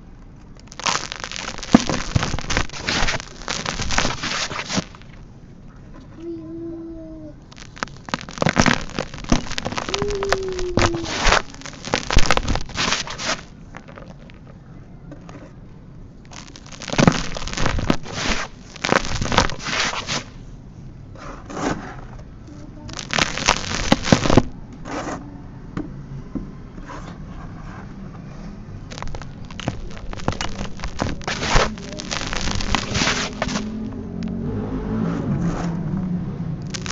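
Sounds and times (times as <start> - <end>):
cement chunks crumbling: 0.5 - 5.3, 7.4 - 14.6, 16.2 - 20.4, 22.9 - 24.5, 28.9 - 33.9, 36.6 - 36.9.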